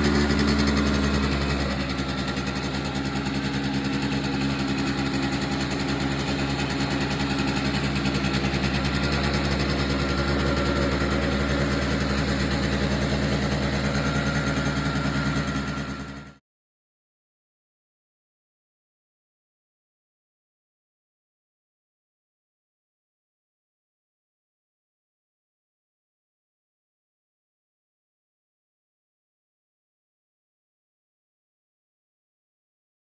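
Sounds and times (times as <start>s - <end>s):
scooter engine idling: 0.0s - 16.4s.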